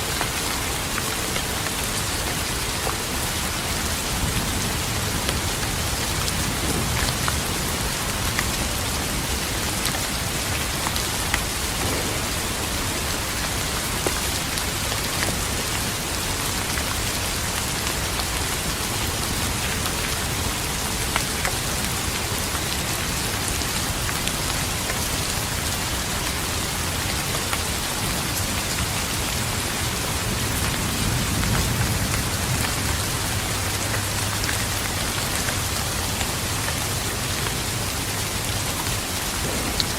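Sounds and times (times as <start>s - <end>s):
steady rain falling: 0.0s - 39.9s
distant thunder rumble: 11.4s - 15.5s, 39.4s - 39.9s
raindrop ticks: 39.4s - 39.9s.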